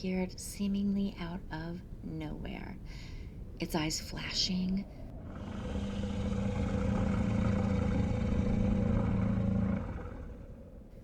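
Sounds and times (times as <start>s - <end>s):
creature growl: 5.2s - 10.8s.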